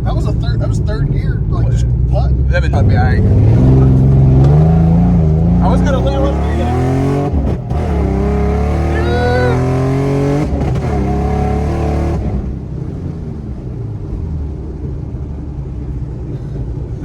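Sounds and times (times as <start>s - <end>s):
car engine revving through gears: 0.0s - 16.3s.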